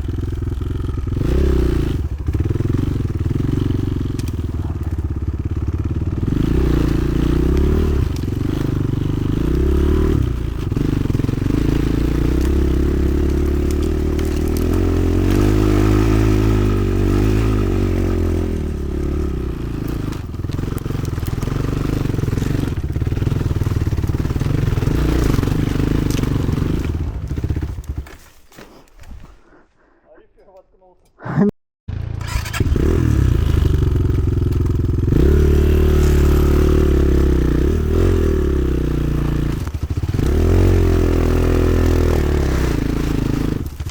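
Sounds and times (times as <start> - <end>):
motorcycle engine revving: 0.0 - 28.3, 31.9 - 43.9.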